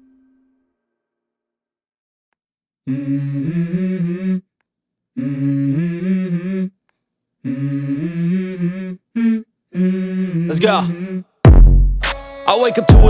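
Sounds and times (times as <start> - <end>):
person humming a tune: 12.4 - 13.0.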